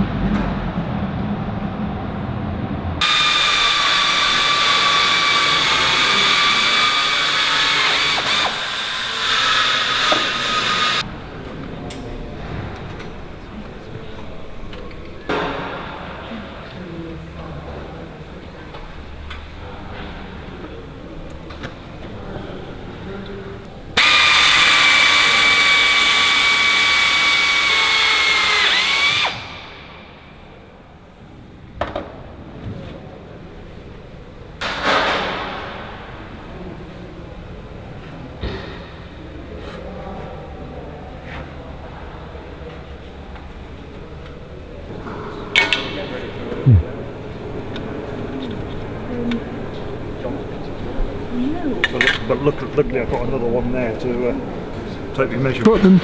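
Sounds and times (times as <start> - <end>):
power drill whining: 3.0 - 11.0, 24.0 - 29.6.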